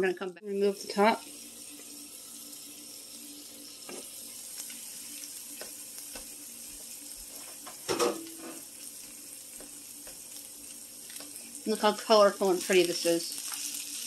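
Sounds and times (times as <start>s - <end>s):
fried rice sizzling in a pan: 0.5s - 14.0s
small crackles: 4.4s - 7.4s, 8.8s - 11.7s, 12.6s - 14.0s
loud clunk: 7.9s - 8.6s.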